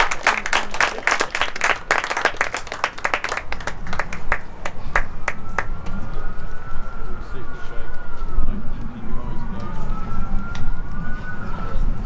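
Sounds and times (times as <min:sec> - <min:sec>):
people clapping: 0:00.0 - 0:06.0.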